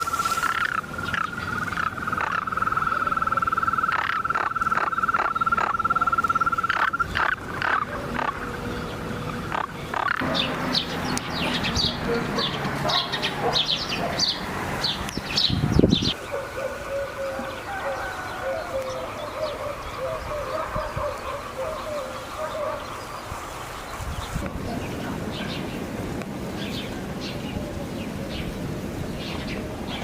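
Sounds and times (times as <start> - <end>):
frog trilling: 0.0 - 8.7, 9.3 - 10.2
birds chirping: 0.0 - 30.0.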